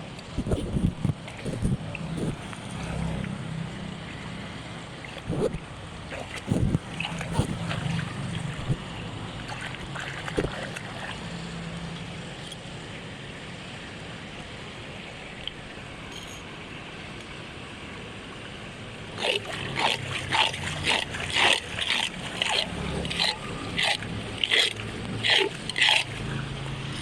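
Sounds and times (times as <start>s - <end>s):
water splashes: 0.2s - 12.4s, 18.7s - 27.0s
water rushing into storm drain: 1.2s - 12.2s, 18.9s - 27.0s.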